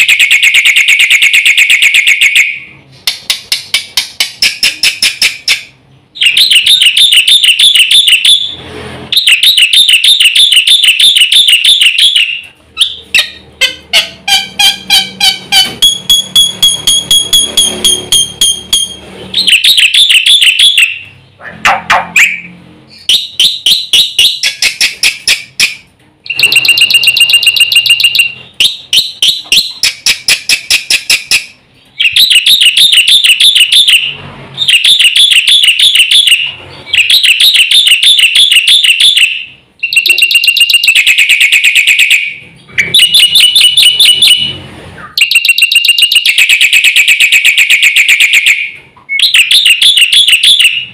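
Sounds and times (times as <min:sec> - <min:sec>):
starling singing: 0:03.5 - 0:21.3.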